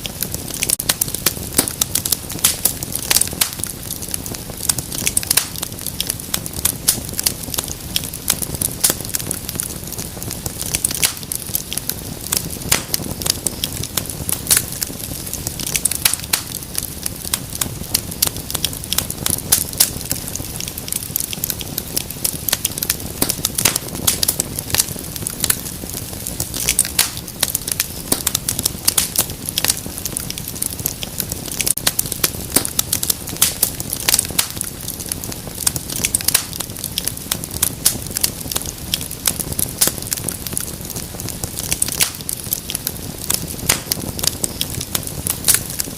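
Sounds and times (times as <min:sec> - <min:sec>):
low rumble of flames: 0:00.0 - 0:45.9
sharp pops and snaps: 0:00.0 - 0:45.9
wood fire crackling: 0:00.0 - 0:45.9.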